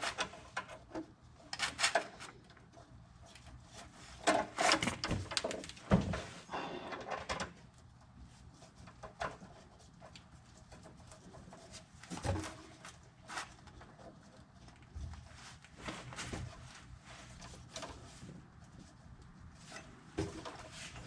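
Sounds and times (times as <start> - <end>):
knocks and clatter of tools: 3.3 - 7.6, 10.6 - 13.0, 19.6 - 21.0.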